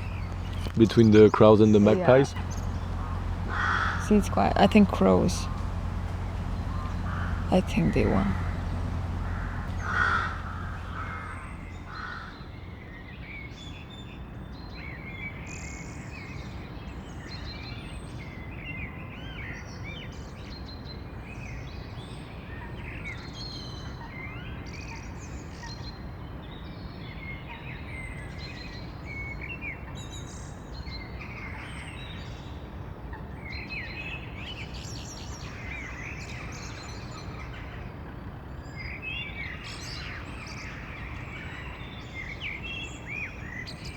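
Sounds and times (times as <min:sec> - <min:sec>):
low background rumble: 0:00.0 - 0:12.7
songbirds chirping: 0:00.0 - 0:13.3, 0:33.5 - 0:43.9.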